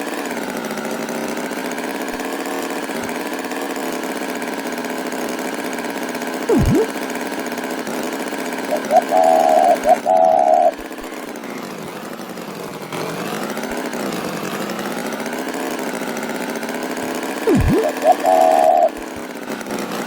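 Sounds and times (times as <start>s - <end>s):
cartoon tractor engine: 0.0s - 20.0s
short high-pitched tones: 6.5s - 6.9s, 17.5s - 19.0s.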